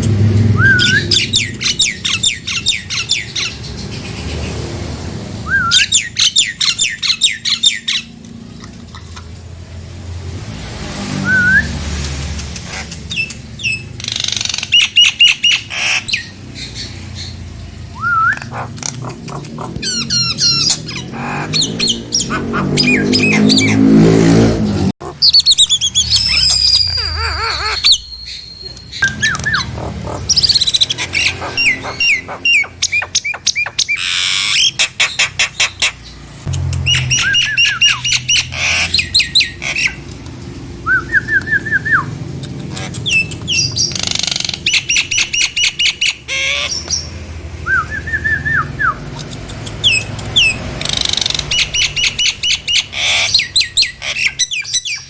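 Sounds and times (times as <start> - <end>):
myna whistled notes: 0.6 - 2.0
myna whistles and squawks: 0.6 - 3.6, 19.3 - 23.8, 25.2 - 35.8, 36.9 - 40.0
myna sharp clicking notes: 36.4 - 38.0.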